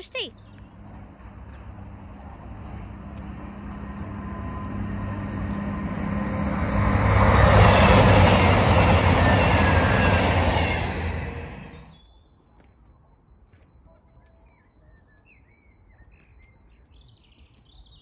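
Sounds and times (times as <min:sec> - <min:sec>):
train engine hum: 0:00.0 - 0:12.0
wheel and rail noise: 0:00.3 - 0:12.0.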